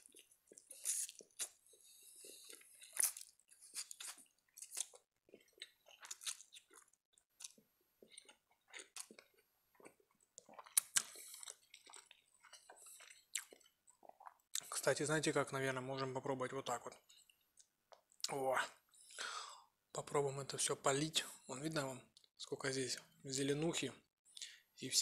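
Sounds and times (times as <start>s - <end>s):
wet chewing: 0.0s - 14.7s.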